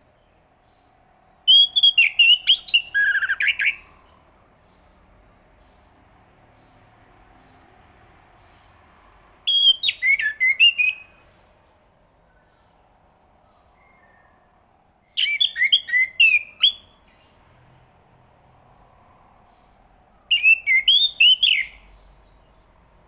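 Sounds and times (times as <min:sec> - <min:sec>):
faint steady hum: 0:00.0 - 0:23.0
thrush singing whistled notes: 0:01.5 - 0:04.9, 0:09.4 - 0:11.4, 0:13.6 - 0:17.1, 0:20.2 - 0:22.7.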